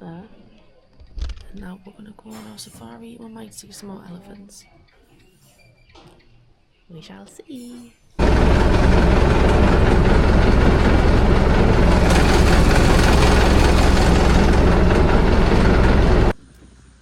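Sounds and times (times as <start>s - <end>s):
vehicle engine and road noise: 8.2s - 16.4s.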